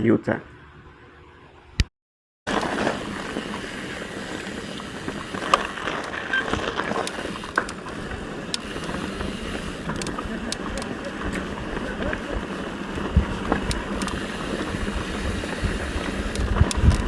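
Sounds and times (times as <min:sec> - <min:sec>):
sharp clicks and rattles: 0:05.3 - 0:14.6, 0:15.9 - 0:17.0.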